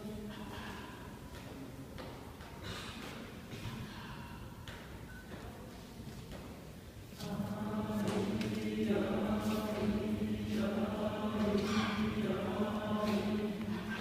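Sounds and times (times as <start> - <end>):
choir chanting low drone: 0.0 - 2.1, 7.2 - 14.0.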